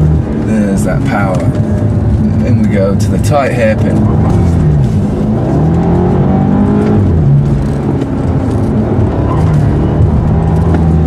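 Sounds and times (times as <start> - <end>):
car engine under hard driving: 0.0 - 11.0.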